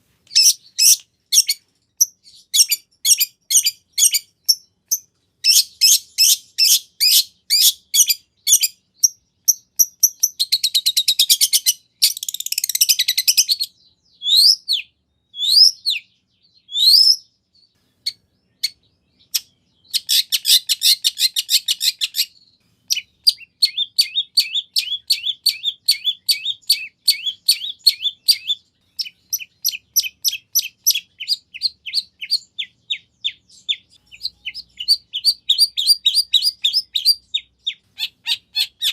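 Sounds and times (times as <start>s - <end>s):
shrike singing varied song: 0.0s - 38.9s.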